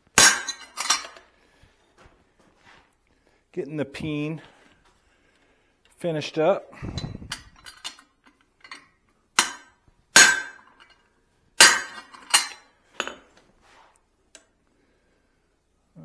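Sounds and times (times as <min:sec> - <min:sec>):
hammer striking hot steel on anvil: 0:00.2 - 0:01.1, 0:09.4 - 0:10.9, 0:11.6 - 0:12.6
light metal taps and clinks: 0:00.5 - 0:01.2, 0:07.0 - 0:11.1, 0:11.8 - 0:13.4.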